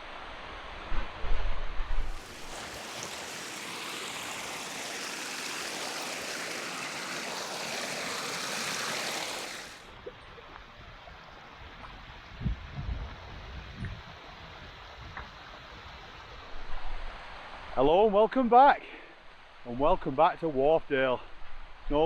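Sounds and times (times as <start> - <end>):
rushing stream water: 2.0 - 16.1.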